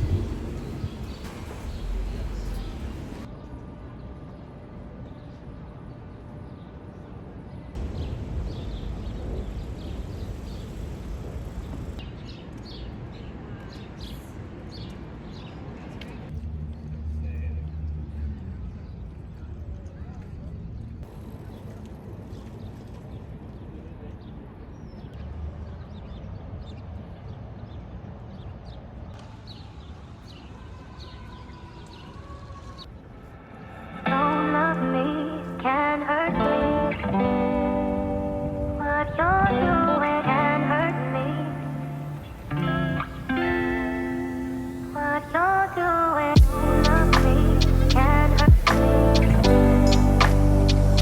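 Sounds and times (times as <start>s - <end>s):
small birds chirping: 0.0s - 3.3s
low outdoor rumble: 0.0s - 4.2s, 7.7s - 12.0s, 33.8s - 51.0s
steady tone: 40.3s - 51.0s.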